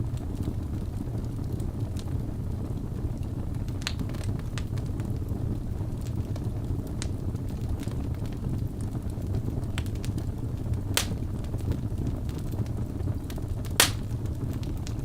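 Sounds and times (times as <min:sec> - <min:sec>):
fire rumbling and crackling: 0:00.0 - 0:15.0
sharp loud pops of burning logs: 0:11.0 - 0:11.4, 0:13.3 - 0:14.9.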